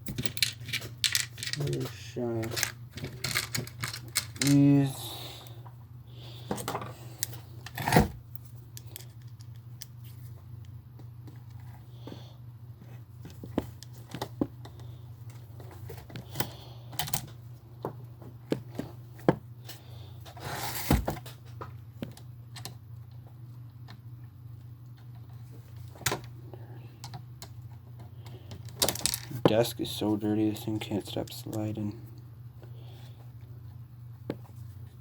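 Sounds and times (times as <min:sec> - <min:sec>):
plastic parts clicking and tapping: 0:00.0 - 0:04.6.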